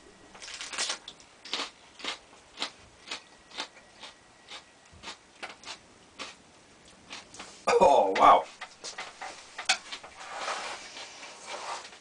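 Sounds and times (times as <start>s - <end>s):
chewing: 0.5s - 7.6s.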